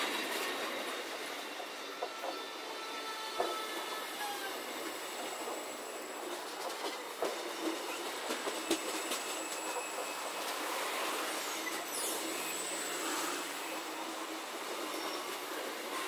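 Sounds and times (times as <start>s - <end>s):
high wheel squeal: 0.4s - 6.4s, 7.5s - 16.0s.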